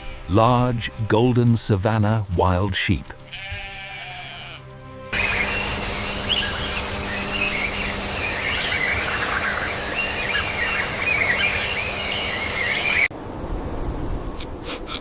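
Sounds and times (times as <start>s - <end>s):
outdoor background noise: 0.0s - 15.0s
small birds chirping: 5.2s - 13.1s.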